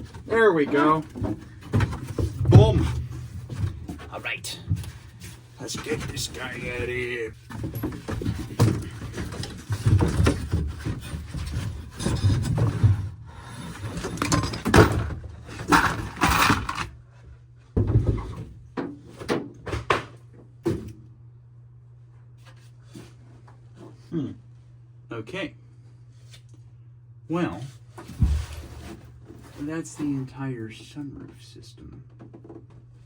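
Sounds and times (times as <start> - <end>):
heavy knocks: 0.6 - 4.0.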